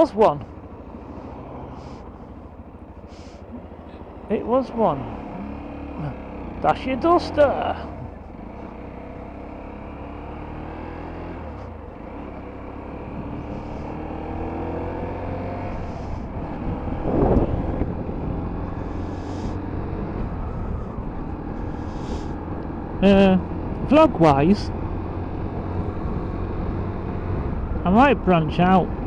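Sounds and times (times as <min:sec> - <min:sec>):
motorcycle engine running: 0:00.0 - 0:29.0
wind rushing: 0:15.7 - 0:18.6.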